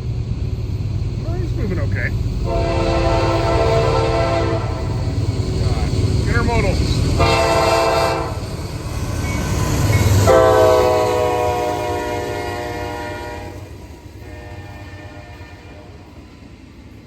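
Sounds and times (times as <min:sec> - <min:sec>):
passing train rumble: 0:00.0 - 0:17.0
locomotive air horn blasts: 0:02.4 - 0:05.1, 0:07.2 - 0:08.4, 0:10.2 - 0:16.1.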